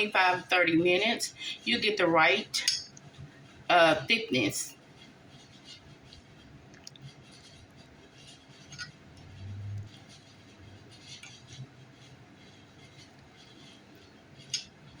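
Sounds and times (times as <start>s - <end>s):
short low hum: 9.2s - 10.1s.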